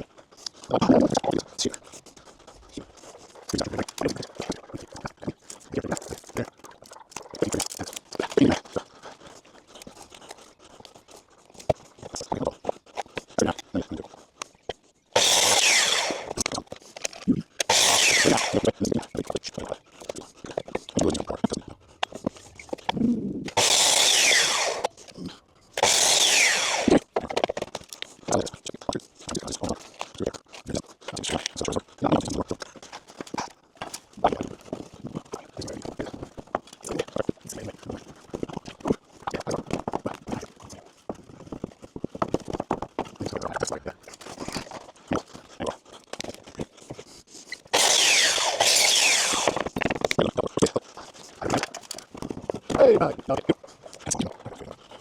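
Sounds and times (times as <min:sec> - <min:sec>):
loud harsh tool noise: 0:15.2 - 0:16.4, 0:17.7 - 0:18.7, 0:23.5 - 0:24.9, 0:25.8 - 0:27.0, 0:47.7 - 0:49.7
power saw cutting wood: 0:15.2 - 0:16.6, 0:17.6 - 0:18.7, 0:23.5 - 0:25.0, 0:25.8 - 0:27.6, 0:47.7 - 0:49.9.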